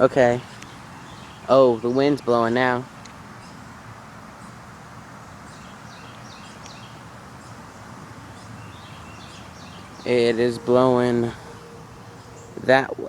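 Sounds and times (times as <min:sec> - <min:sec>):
faint bird chirps: 0:08.3 - 0:13.0.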